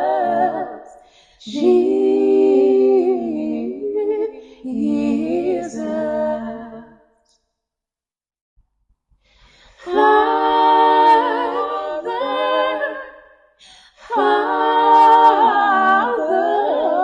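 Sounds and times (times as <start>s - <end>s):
person singing a cappella: 0.0s - 7.0s, 9.8s - 13.1s, 13.9s - 17.0s.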